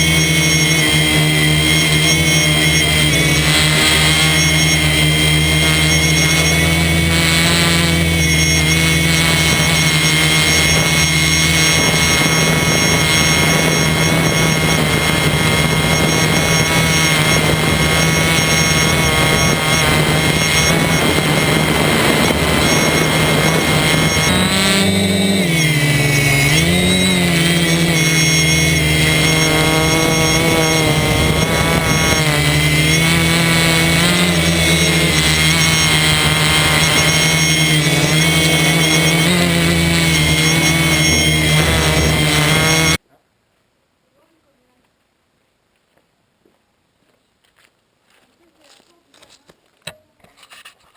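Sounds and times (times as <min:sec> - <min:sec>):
drone propellers whirring: 0:00.0 - 0:43.0.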